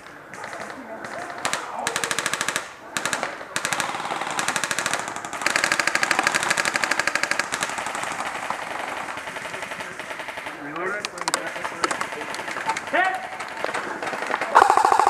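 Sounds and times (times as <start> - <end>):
airsoft gun bursts: 0.3 - 15.0.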